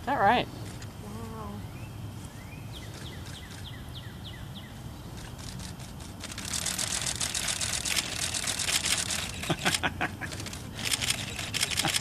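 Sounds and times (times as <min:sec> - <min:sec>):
rapid high clicking and rustling: 0:05.2 - 0:12.0.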